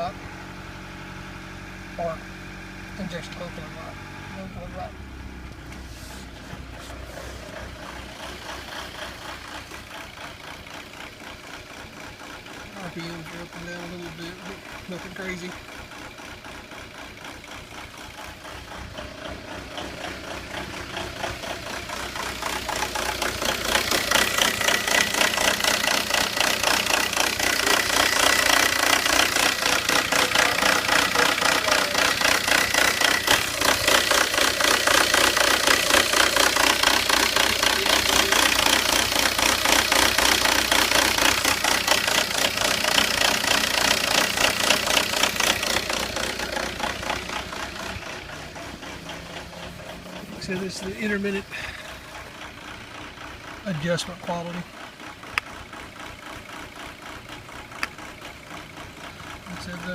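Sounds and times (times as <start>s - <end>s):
diesel engine idling roughly: 0.0s - 59.9s.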